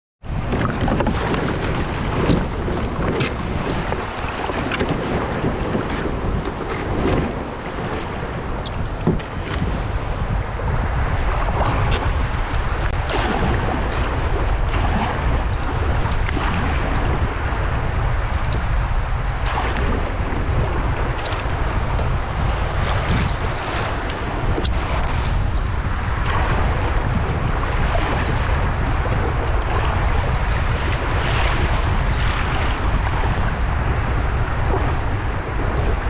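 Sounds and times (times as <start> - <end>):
rushing water and surf: 0.2 - 36.0
wind buffeting microphone: 0.2 - 36.0
short splashes: 1.1 - 10.8.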